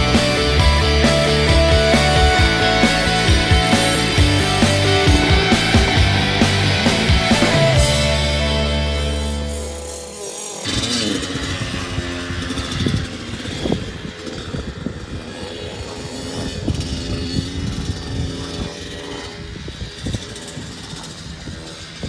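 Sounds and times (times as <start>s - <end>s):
dirt bike engine running: 0.0s - 22.0s.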